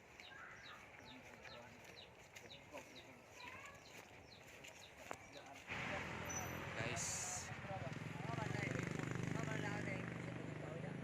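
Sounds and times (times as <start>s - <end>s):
faint bird chirping: 0.0s - 6.7s
soft lower bird calls: 0.1s - 5.4s.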